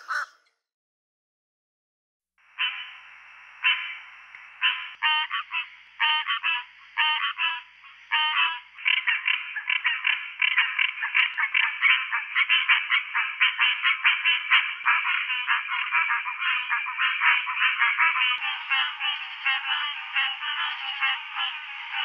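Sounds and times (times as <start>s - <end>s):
treefrogs calling: 0.0s - 0.5s, 8.1s - 17.6s.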